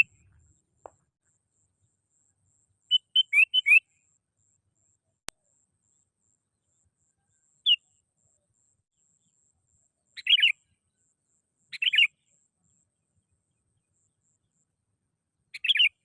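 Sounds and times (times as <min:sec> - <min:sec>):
bulbul calling: 0:00.0 - 0:01.0, 0:02.9 - 0:04.0, 0:10.1 - 0:10.7, 0:11.7 - 0:12.2, 0:15.5 - 0:16.0.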